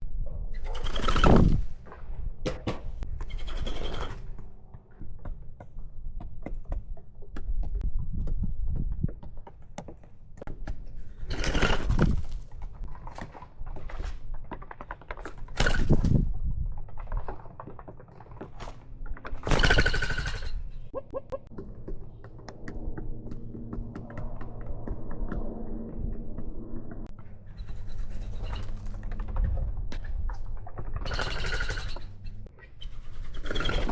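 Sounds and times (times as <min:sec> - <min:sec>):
birds scuffling knocks and scrapes: 0:16.8 - 0:22.3.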